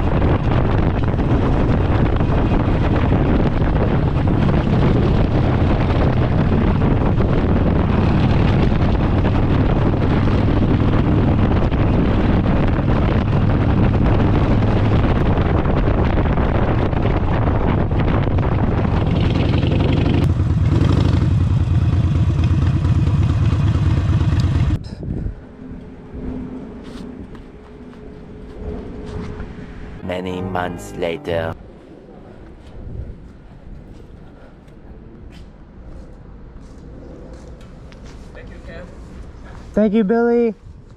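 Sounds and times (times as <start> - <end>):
loud motorcycle exhaust: 0.0 - 24.8.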